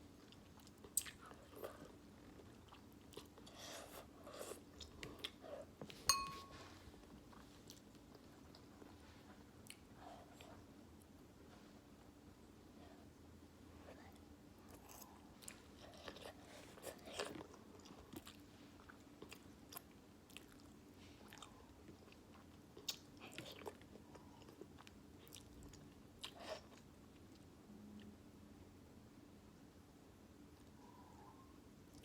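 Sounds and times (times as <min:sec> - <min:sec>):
person chewing noodles: 0:00.1 - 0:05.7, 0:14.6 - 0:27.4.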